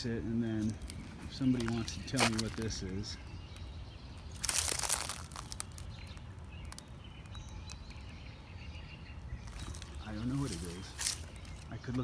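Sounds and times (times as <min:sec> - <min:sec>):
rustling crunch: 0:00.4 - 0:03.0, 0:04.2 - 0:06.9, 0:09.4 - 0:12.0.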